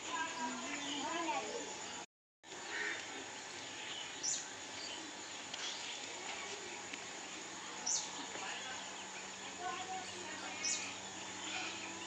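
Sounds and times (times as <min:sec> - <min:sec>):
background hiss: 0:00.0 - 0:12.0
faint bird chirps: 0:07.7 - 0:12.0.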